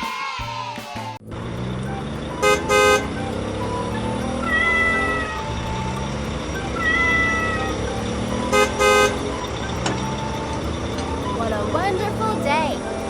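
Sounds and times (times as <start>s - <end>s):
light background music: 0.0s - 13.0s
high drawn-out dipping tones: 1.2s - 13.0s
cartoon vehicle horn beeping: 2.2s - 11.2s.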